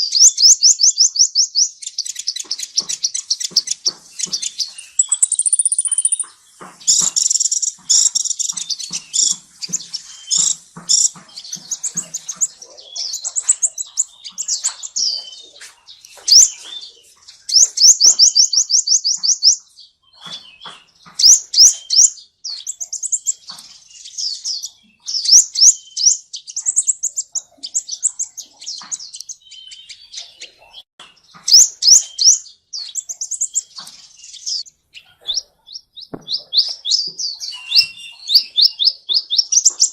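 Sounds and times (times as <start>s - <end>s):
fast bird trill: 0.0s - 20.4s, 31.4s - 39.9s
finches chirping and twittering: 0.0s - 39.9s.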